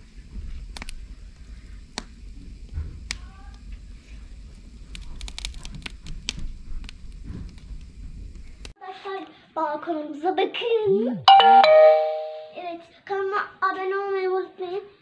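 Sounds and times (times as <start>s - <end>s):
wood fire crackling: 0.0s - 8.7s.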